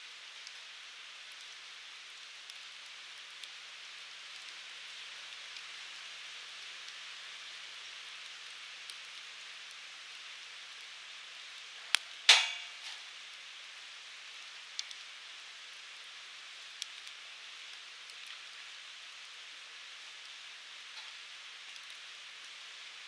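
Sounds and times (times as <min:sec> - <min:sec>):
firewood burning with soft hiss: 0:00.0 - 0:23.0
sharp pops of burning wood: 0:11.6 - 0:13.2, 0:20.9 - 0:22.0.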